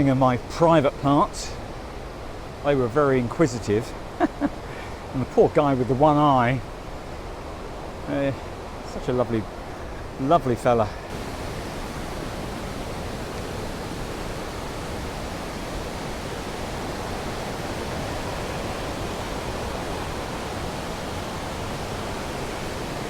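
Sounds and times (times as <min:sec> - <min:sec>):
waterfall rushing: 0:06.8 - 0:23.0.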